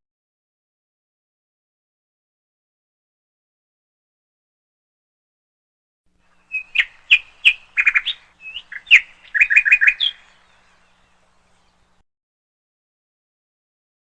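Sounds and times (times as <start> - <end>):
small bird chirping: 6.2 - 12.0.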